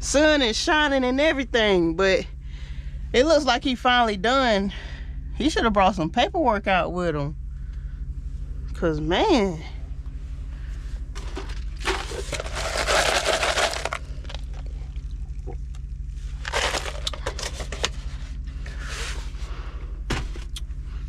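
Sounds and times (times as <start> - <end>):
truck engine idling hum: 0.0 - 21.0
rustling and crinkling handling noise: 11.0 - 15.4, 16.1 - 19.5.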